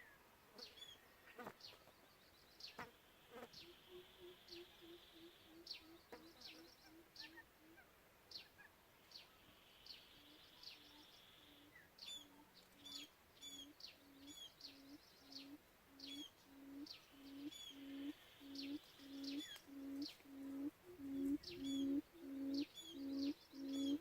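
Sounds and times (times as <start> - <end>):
quail low hooting call: 3.6 - 8.7, 10.2 - 24.0
high bird chirps: 12.9 - 24.0.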